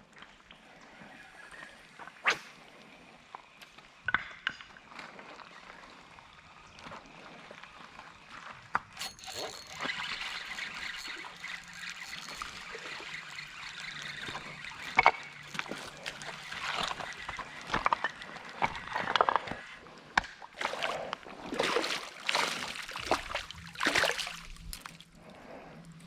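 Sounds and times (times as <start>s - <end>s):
creek water splashing: 9.0s - 25.1s.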